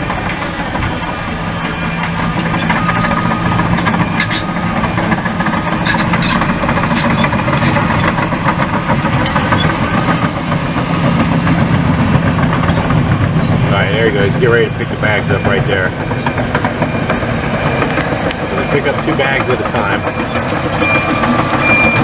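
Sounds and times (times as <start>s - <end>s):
heavy engine running: 0.0s - 22.0s
sharp metallic clicks and clanks: 0.1s - 13.4s.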